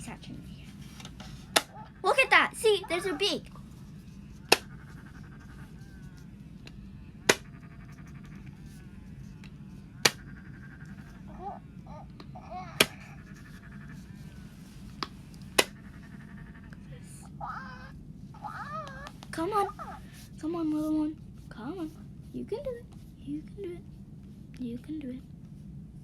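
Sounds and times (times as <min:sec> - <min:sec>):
toy faint warbling: 0:01.7 - 0:03.7, 0:10.1 - 0:14.7, 0:15.7 - 0:20.2
beak tapping plastic shell: 0:04.4 - 0:08.5, 0:09.4 - 0:11.4.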